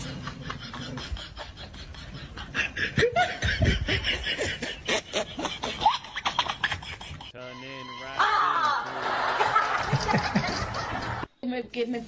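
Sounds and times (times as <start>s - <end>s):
person laughing: 0.0s - 7.5s.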